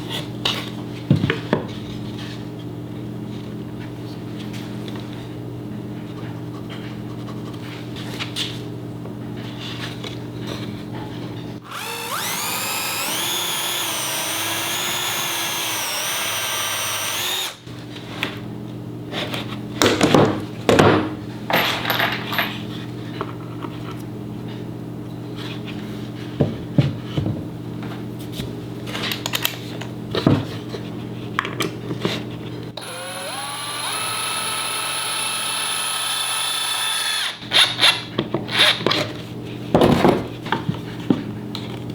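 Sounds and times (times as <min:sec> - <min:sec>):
power drill whining: 0:11.6 - 0:17.6, 0:32.8 - 0:37.4
knocks and clatter of handling: 0:19.8 - 0:22.6, 0:38.1 - 0:41.9.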